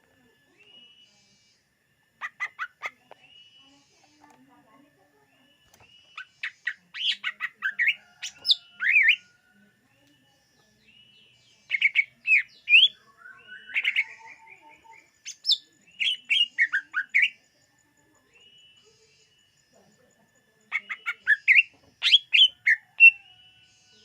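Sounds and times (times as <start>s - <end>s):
bird singing fast chirps: 5.4s - 9.3s, 10.6s - 17.4s, 20.7s - 24.0s.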